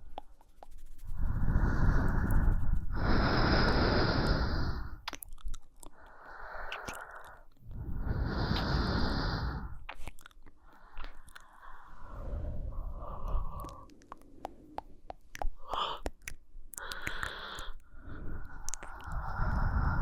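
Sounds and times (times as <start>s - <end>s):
wet mouth and lip clicks: 0.0s - 2.8s, 5.0s - 7.7s, 9.8s - 11.7s, 13.2s - 19.6s
person breathing slowly: 1.0s - 5.0s, 5.9s - 9.9s, 10.6s - 20.0s.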